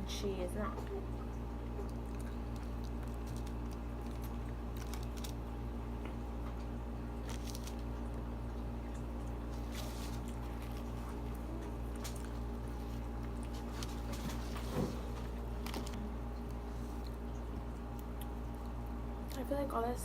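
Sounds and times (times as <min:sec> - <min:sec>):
low electrical hum: 0:00.0 - 0:20.0
chewing clicks and smacks: 0:01.7 - 0:05.4, 0:15.8 - 0:19.4.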